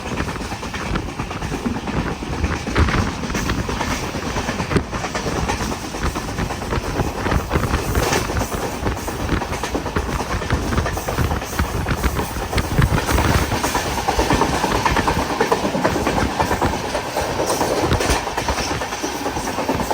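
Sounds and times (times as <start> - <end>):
train rumbling and rattling on rails: 0.0 - 19.9.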